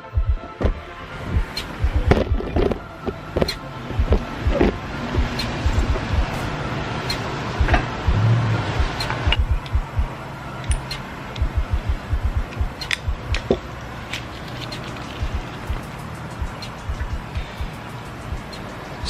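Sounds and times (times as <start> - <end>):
low thumps: 0.0 - 13.7, 14.7 - 18.6
small metal parts clicking: 14.1 - 16.0.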